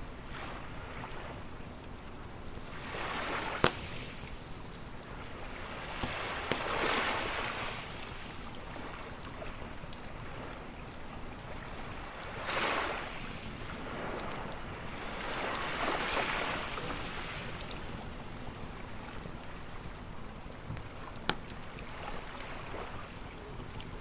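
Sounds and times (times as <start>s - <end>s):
campfire popping: 0.0s - 12.6s, 13.2s - 24.0s
ocean waves washing onto beach: 0.0s - 24.0s.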